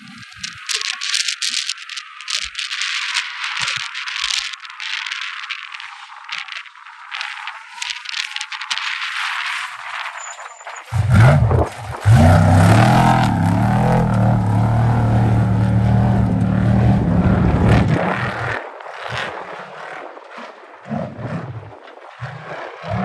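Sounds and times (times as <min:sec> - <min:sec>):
broken bursts of noise: 0:00.3 - 0:19.4
steady rushing noise: 0:05.4 - 0:23.0
race vehicle engine under load: 0:10.8 - 0:18.6.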